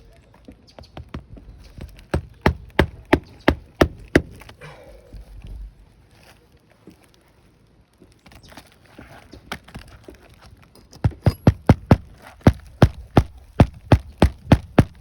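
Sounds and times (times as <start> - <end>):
hammer driving nails into shingles: 1.9 - 4.6, 11.0 - 15.0.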